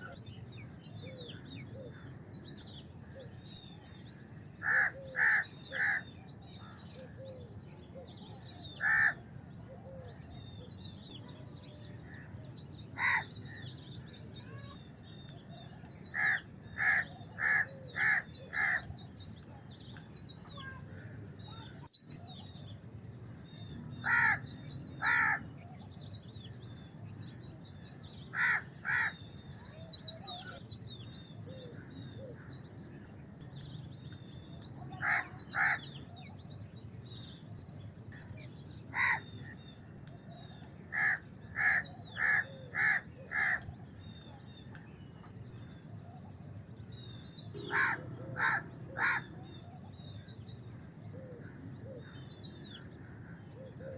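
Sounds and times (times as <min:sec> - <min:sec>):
small birds chirping: 0:00.0 - 0:53.9
crows cawing: 0:04.6 - 0:06.1, 0:08.8 - 0:09.3, 0:13.0 - 0:13.6, 0:16.1 - 0:18.9, 0:24.0 - 0:25.4, 0:28.3 - 0:29.3, 0:35.0 - 0:35.9, 0:38.9 - 0:39.3, 0:40.9 - 0:43.7, 0:47.6 - 0:49.4.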